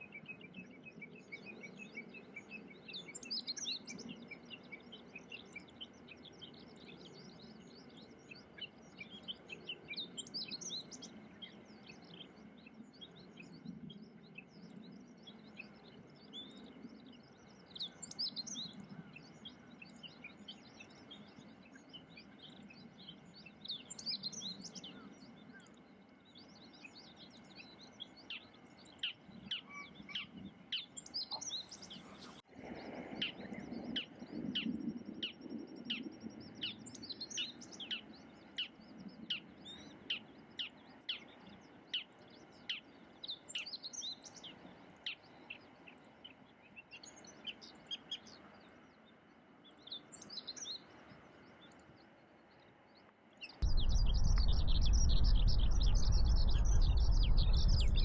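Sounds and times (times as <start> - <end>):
small birds chirping: 0.0 - 32.5, 33.2 - 58.0.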